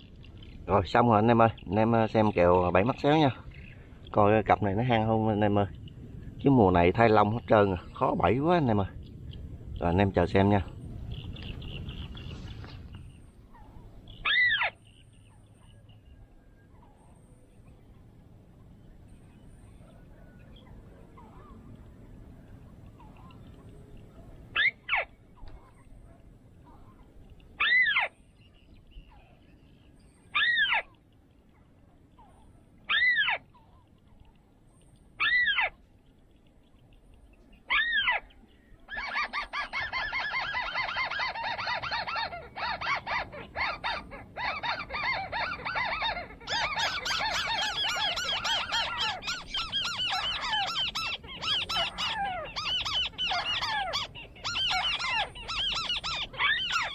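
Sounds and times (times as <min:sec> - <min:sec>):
fast chattering birdsong: 0:00.0 - 0:56.9.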